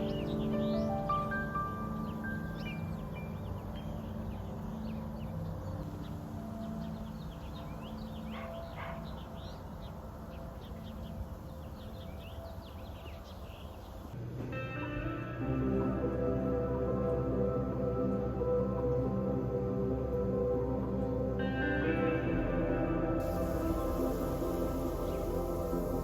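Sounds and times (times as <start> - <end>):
small birds chirping: 0.0 - 14.2, 23.2 - 26.0
low background noise: 0.0 - 26.0.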